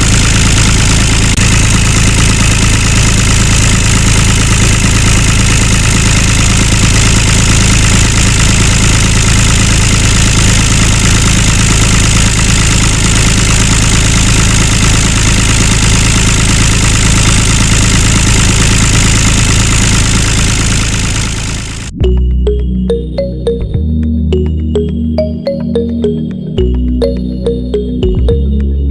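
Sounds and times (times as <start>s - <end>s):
small tractor motor droning: 0.0s - 22.0s.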